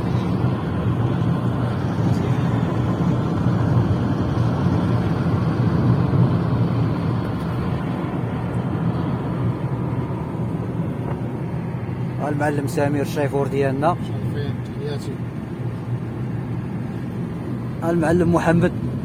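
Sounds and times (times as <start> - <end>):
vehicle engine and tyre rumble: 0.0 - 19.0.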